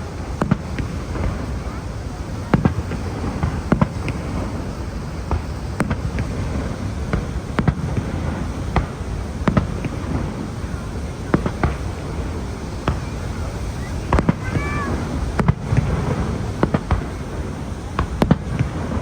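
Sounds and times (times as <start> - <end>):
fireworks bangs and pops: 0.0 - 19.0.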